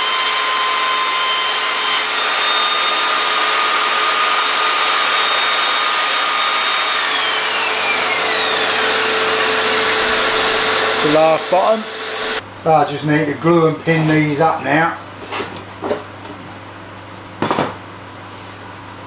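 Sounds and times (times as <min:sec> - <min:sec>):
saw blade motor whine: 0:00.0 - 0:12.4
saw rushing noise: 0:00.0 - 0:12.4.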